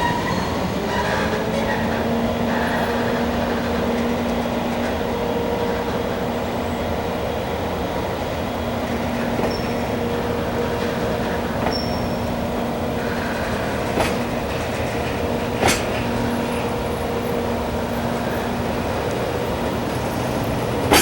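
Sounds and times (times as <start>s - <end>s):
freight train rumbling on rails: 0.0s - 21.0s
sharp metal clanks: 13.9s - 16.4s.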